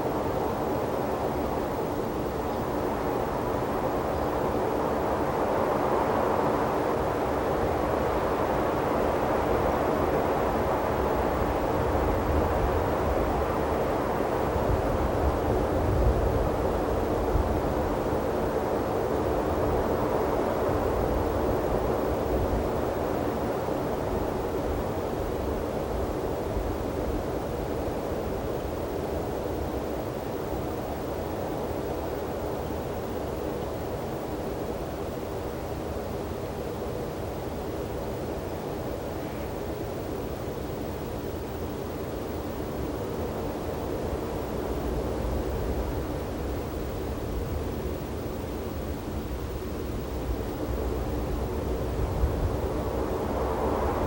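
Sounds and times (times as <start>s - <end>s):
rushing wind: 37.6s - 54.0s
wind blowing over microphones: 49.4s - 54.0s.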